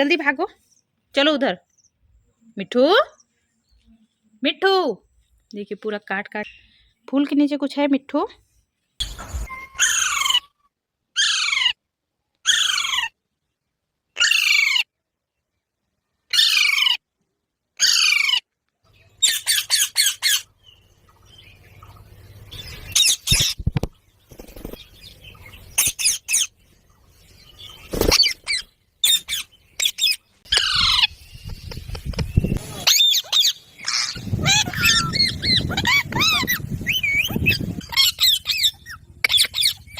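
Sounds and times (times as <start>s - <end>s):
parakeet screeching: 9.6s - 10.6s, 11.2s - 11.8s, 12.5s - 13.1s, 14.2s - 14.8s, 16.3s - 17.0s, 17.8s - 18.4s, 19.2s - 20.5s, 28.0s - 31.2s, 32.8s - 39.9s.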